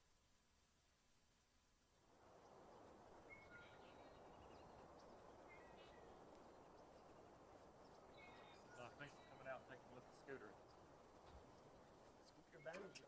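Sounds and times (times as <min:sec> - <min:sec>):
faint bird chirps: 0:03.2 - 0:13.0.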